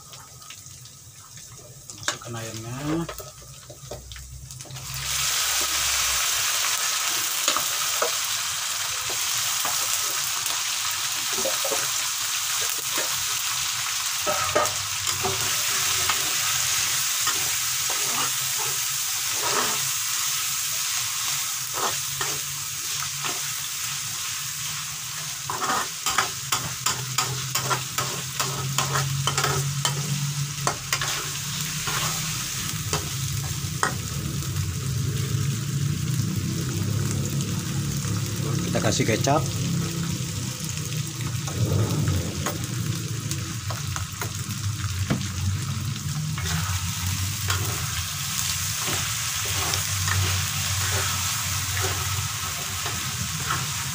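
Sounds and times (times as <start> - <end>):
food sizzling in hot oil: 0.0 - 53.9
spatula scraping and knocking pan: 14.2 - 16.4, 25.5 - 31.3.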